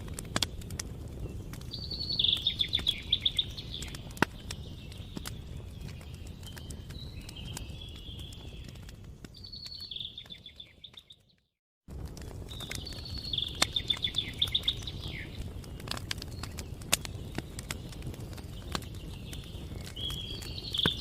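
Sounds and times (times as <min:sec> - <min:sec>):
campfire crackling and popping: 0:00.0 - 0:21.0
songbird trilling: 0:01.8 - 0:04.0, 0:12.8 - 0:15.4.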